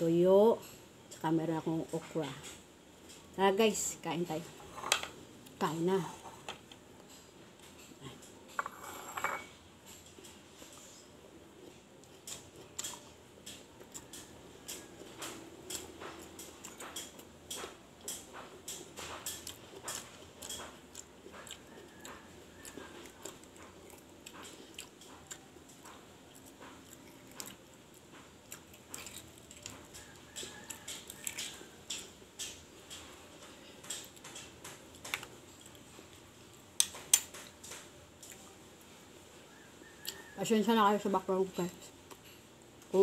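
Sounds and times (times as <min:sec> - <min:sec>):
person biting and chewing: 0:28.4 - 0:32.6.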